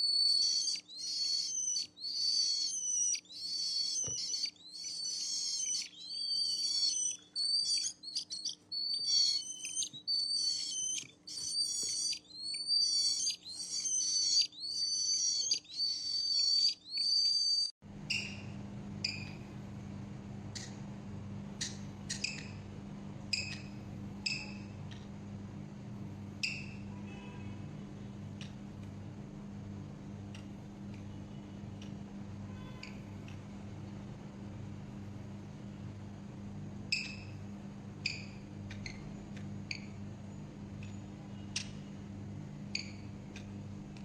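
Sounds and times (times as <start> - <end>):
parrot calling: 0.0 - 18.4
steady low hum: 17.3 - 44.0.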